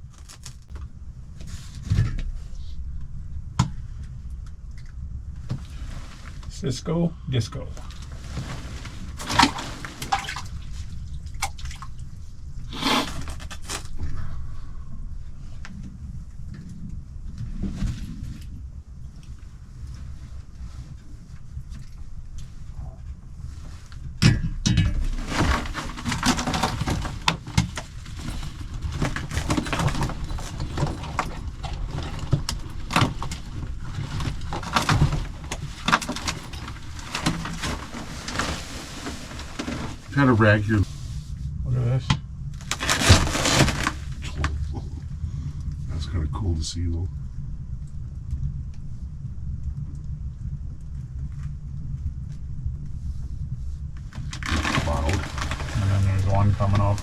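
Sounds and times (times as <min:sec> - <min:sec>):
low steady rumble: 0:00.0 - 0:57.0
knocks clicks and rattles: 0:24.2 - 0:38.4.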